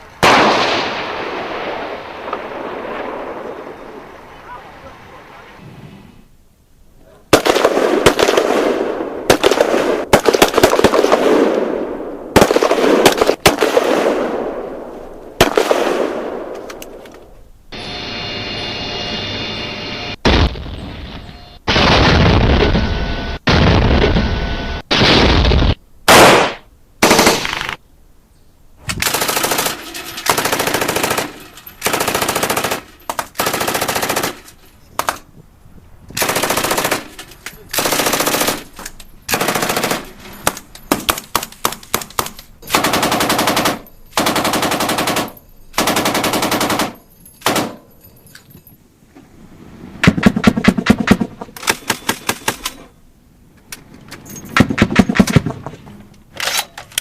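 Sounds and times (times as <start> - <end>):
automatic weapon firing bursts: 7.3 - 11.5, 12.4 - 14.2, 29.0 - 34.4, 36.2 - 37.2, 37.8 - 38.7, 39.3 - 47.8.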